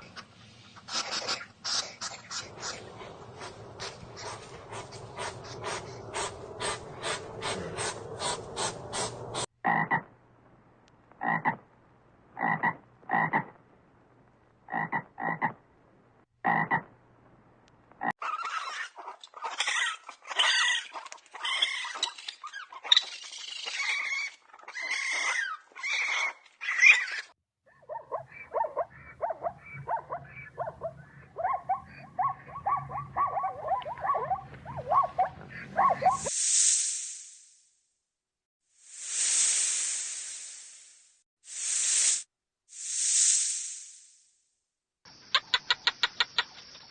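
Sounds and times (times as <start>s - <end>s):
animal calls: 0.0s - 10.1s, 18.0s - 36.3s.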